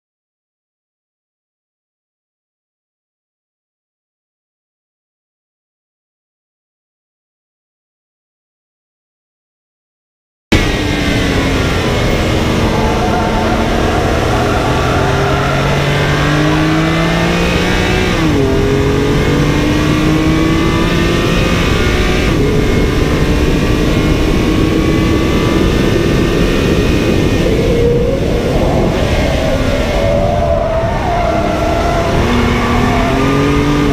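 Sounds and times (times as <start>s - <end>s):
car engine accelerating: 10.5s - 33.9s
steady rushing noise: 10.5s - 33.9s.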